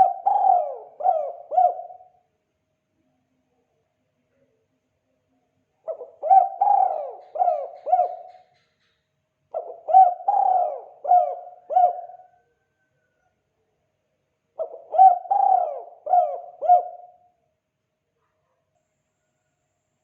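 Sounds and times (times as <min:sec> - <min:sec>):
dove cooing: 0:00.0 - 0:02.2, 0:05.8 - 0:08.6, 0:09.5 - 0:12.8, 0:14.6 - 0:17.4.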